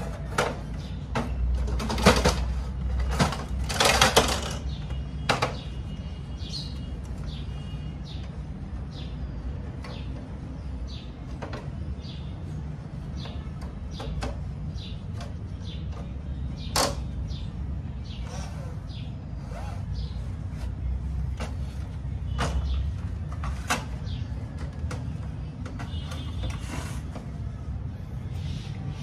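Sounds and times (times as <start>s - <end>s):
sharp knocks and clatters: 0.1s - 6.0s.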